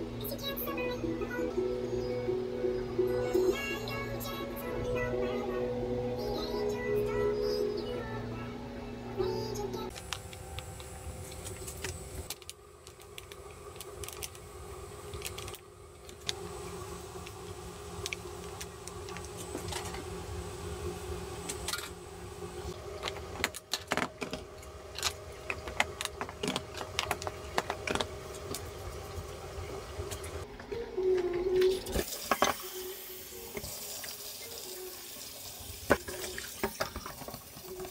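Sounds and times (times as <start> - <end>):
steady machine hum: 0.0 - 37.9
utensils and containers clinking: 31.2 - 37.9.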